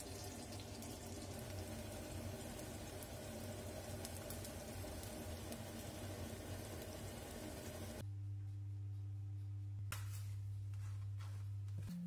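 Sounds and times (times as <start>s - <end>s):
oil sizzling in a pan: 0.0s - 8.0s.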